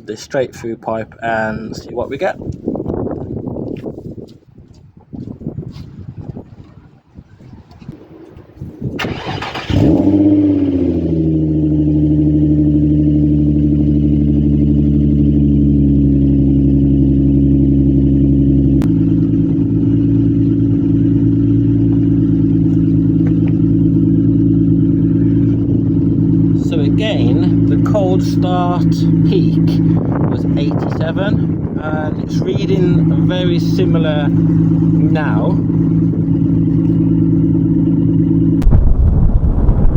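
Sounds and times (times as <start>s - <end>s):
starter cranking: 9.0s - 10.3s
car engine revving and idling: 9.0s - 39.6s.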